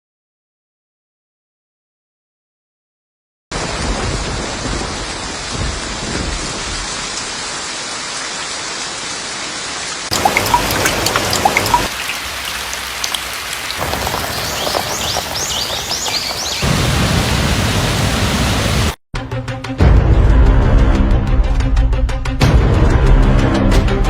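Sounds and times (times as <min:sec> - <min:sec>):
rain falling: 0:03.6 - 0:19.0
water dripping: 0:10.1 - 0:17.3.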